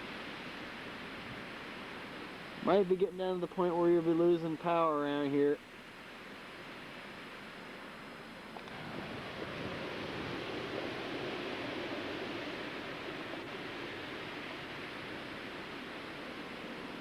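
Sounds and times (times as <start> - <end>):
blizzard wind gusting: 8.7 - 17.0.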